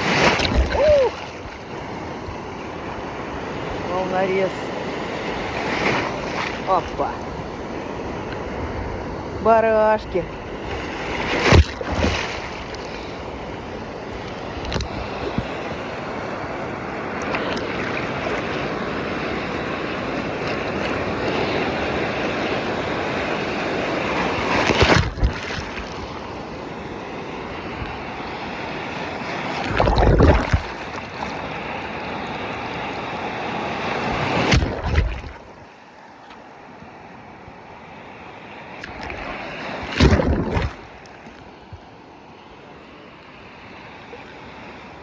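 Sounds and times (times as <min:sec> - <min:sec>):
rough sea surf breaking: 0:00.0 - 0:45.0.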